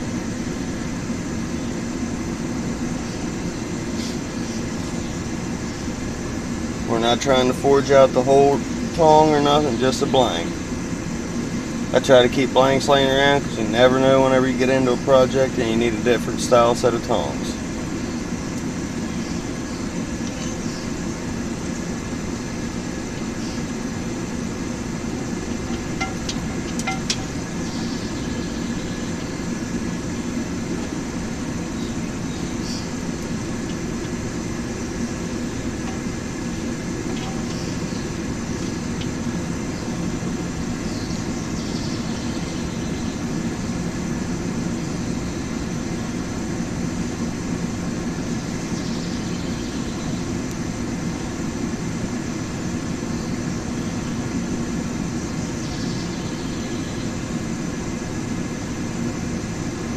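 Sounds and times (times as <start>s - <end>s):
forge rushing noise: 0.0s - 42.7s.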